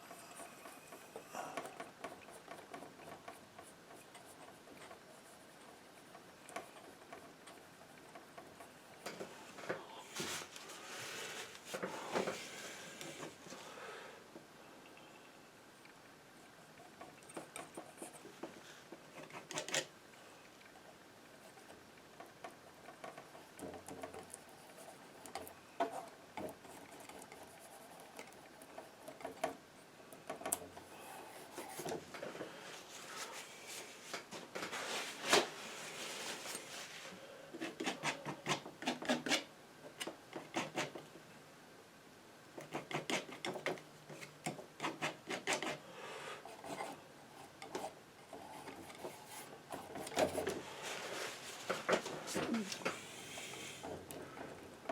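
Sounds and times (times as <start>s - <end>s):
painting knife scraping canvas: 34.7s - 39.5s, 40.4s - 41.0s, 42.6s - 45.8s.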